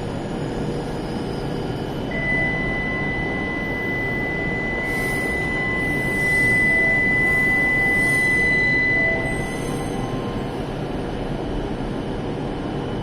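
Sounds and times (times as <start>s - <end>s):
train rumbling: 0.0s - 12.7s
high-pitched electronic tone: 2.1s - 10.6s.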